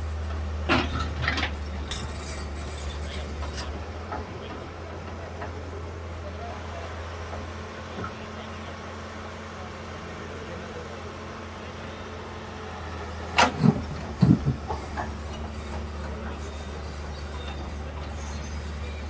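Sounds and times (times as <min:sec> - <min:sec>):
low engine rumble: 0:00.0 - 0:19.0
loud knocks and clanks: 0:13.4 - 0:16.4.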